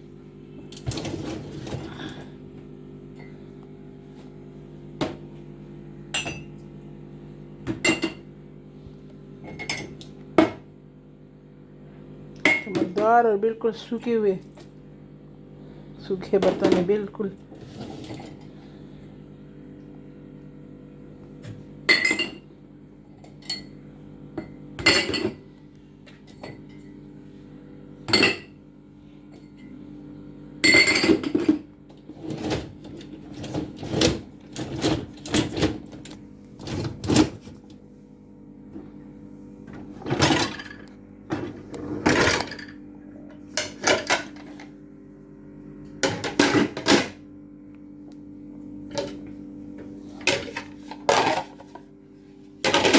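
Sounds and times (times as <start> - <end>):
steady low hum: 0.0 - 52.9
dishes clinking and clattering: 21.9 - 22.5, 24.4 - 25.4, 30.6 - 31.7, 50.2 - 51.8.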